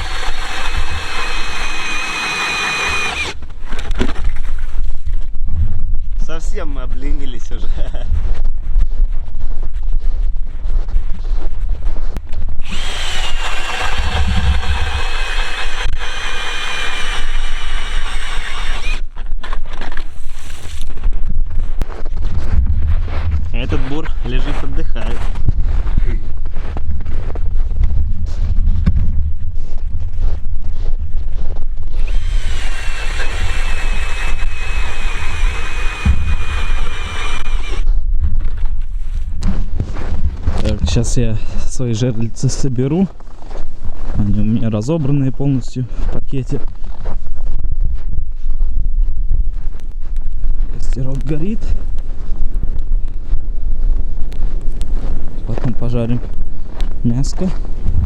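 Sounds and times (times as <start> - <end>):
drill motor whine: 0.0 - 3.4, 12.6 - 19.0, 32.0 - 37.8
wind on microphone: 0.0 - 42.4, 45.8 - 58.0.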